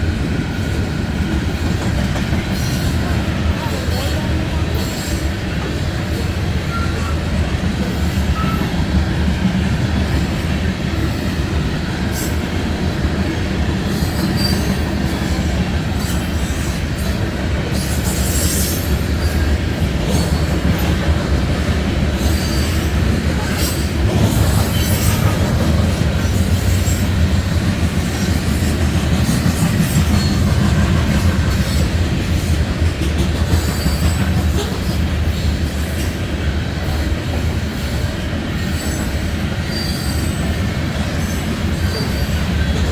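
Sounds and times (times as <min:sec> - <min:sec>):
train wheels rumbling on rail: 0:00.0 - 0:42.9
wheels clicking over rail joints: 0:13.1 - 0:35.4
wheel squeal: 0:14.0 - 0:14.8, 0:39.7 - 0:40.5.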